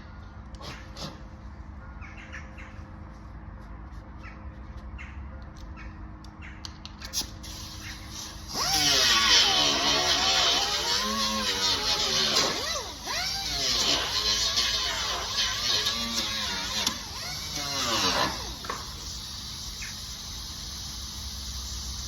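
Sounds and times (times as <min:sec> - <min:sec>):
grinder on metal: 0:08.1 - 0:19.4.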